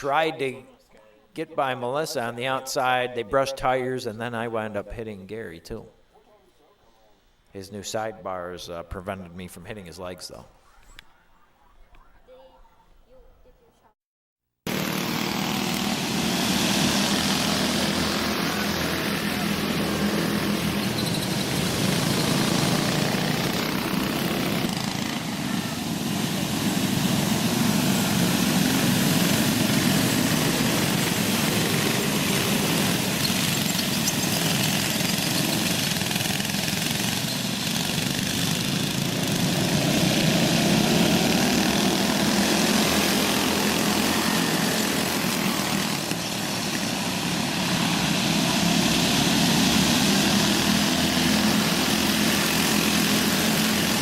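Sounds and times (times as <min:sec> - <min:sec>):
go-kart engines racing: 0:14.7 - 0:54.0.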